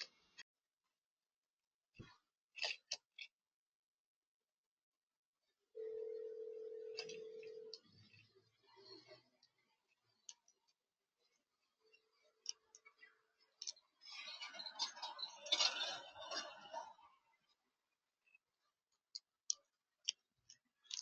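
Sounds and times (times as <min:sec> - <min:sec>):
birds clicking and tapping: 0:20.5 - 0:21.0.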